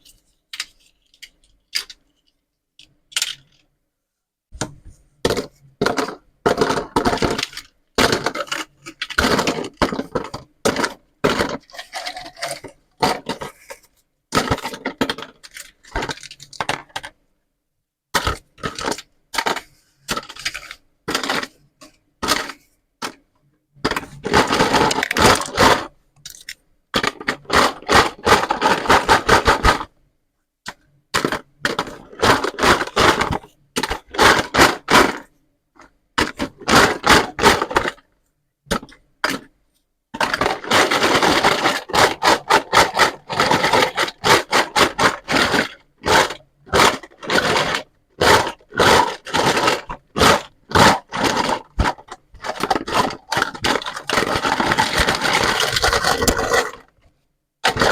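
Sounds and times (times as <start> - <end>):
toy play set crackling and clicking: 0.1 - 3.7, 5.9 - 13.7, 14.4 - 17.2, 18.2 - 21.5, 23.9 - 29.9, 40.2 - 57.0, 57.6 - 57.9.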